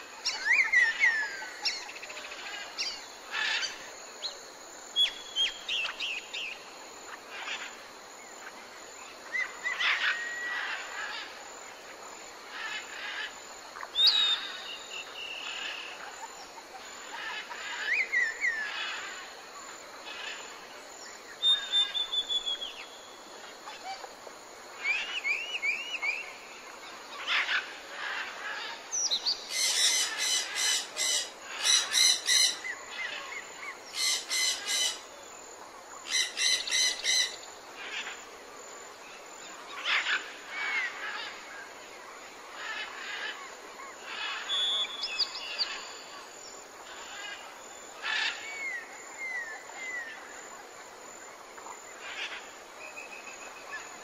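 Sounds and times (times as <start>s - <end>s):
forest ambience hiss: 0.0s - 54.0s
rapid repeated bird calls: 0.0s - 54.0s
birds whistling and chirping: 13.9s - 15.5s, 21.4s - 22.9s, 44.5s - 45.8s.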